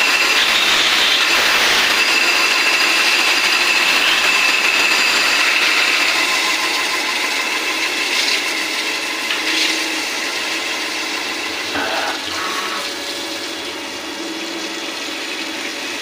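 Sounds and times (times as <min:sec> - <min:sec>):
cnc machine grinding metal: 0:00.0 - 0:16.0
high whine: 0:00.4 - 0:09.1, 0:11.2 - 0:14.2.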